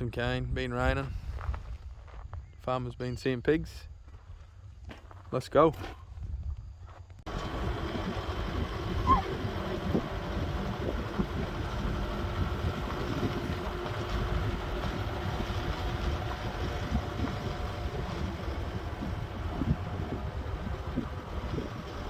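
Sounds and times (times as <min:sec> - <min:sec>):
vehicle engine and road rumble: 0:07.0 - 0:22.0.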